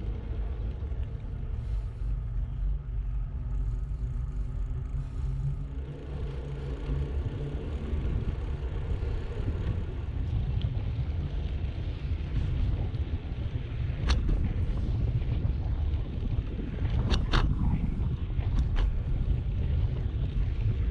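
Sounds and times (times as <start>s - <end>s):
bicycle rolling rumble: 0.0s - 20.9s
wind buffeting microphone: 5.8s - 20.9s.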